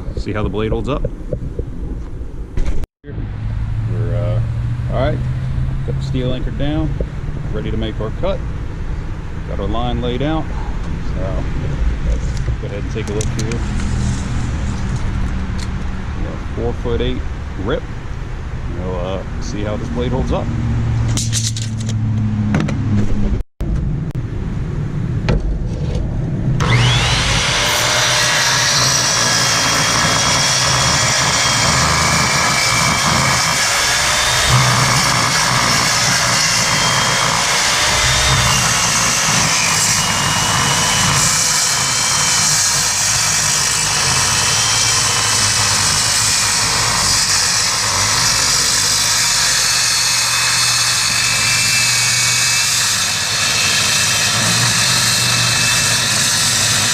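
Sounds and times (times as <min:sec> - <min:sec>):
circular saw cutting steel: 0:26.6 - 0:56.9.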